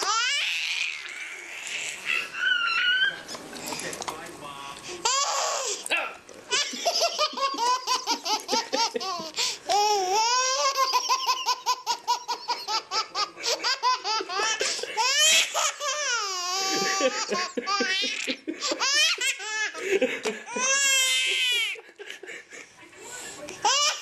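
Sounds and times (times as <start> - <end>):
baby laughing hysterically: 0.0 - 1.0, 6.5 - 21.9, 23.6 - 24.0.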